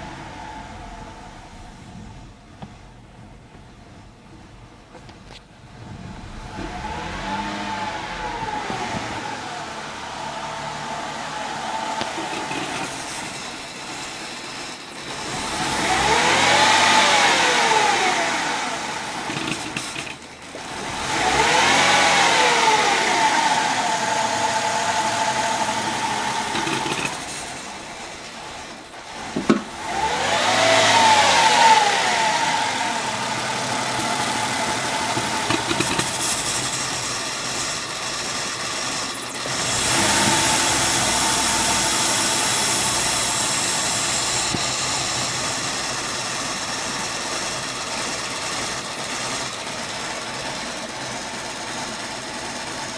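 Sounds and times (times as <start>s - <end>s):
car engine revving and idling: 0.0s - 52.9s.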